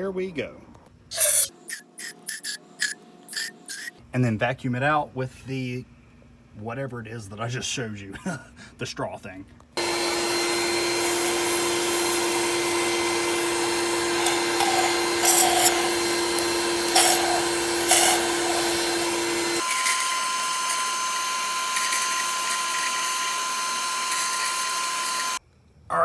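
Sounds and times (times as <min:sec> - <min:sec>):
sucking slurps: 0:01.1 - 0:04.0, 0:11.0 - 0:19.6
vacuum cleaner running: 0:09.8 - 0:25.4.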